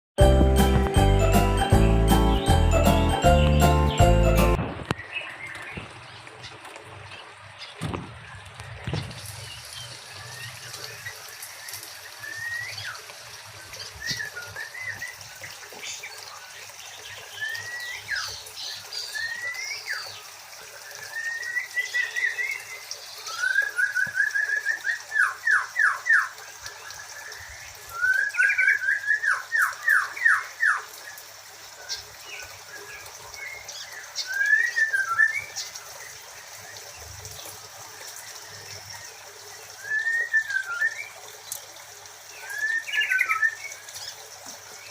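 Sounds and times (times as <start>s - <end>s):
songbirds whistling calls: 11.7s - 13.0s, 13.8s - 15.2s, 20.8s - 26.4s, 27.0s - 30.9s, 33.4s - 35.8s, 39.6s - 41.2s, 42.4s - 44.2s.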